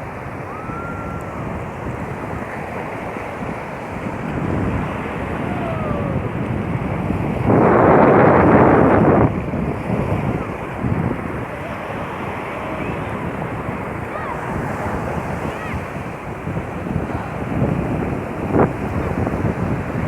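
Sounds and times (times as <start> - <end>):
sea waves washing on beach: 0.0 - 20.0
wind buffeting microphone: 0.0 - 20.0
loud rush of noise: 4.2 - 16.1.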